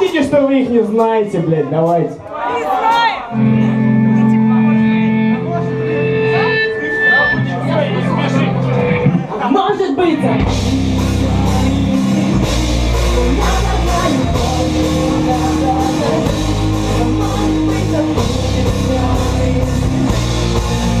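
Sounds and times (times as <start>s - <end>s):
drum beat: 0.0s - 3.2s, 10.4s - 21.0s
rock band playing live: 2.8s - 21.0s
person singing: 10.2s - 21.0s.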